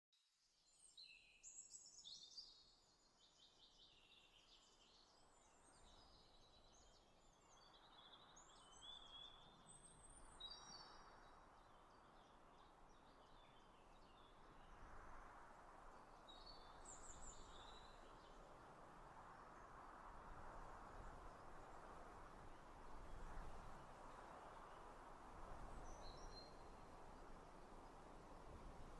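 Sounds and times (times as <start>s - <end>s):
soft steady rushing noise: 14.3s - 28.9s.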